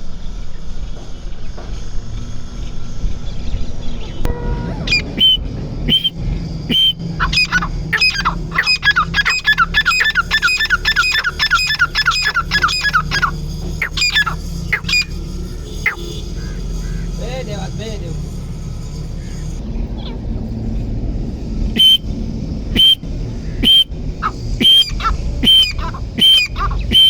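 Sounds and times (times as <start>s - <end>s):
steady low hum: 0.0s - 27.0s
francolin calling: 4.3s - 6.1s, 6.7s - 17.2s, 21.8s - 22.0s, 22.8s - 27.0s.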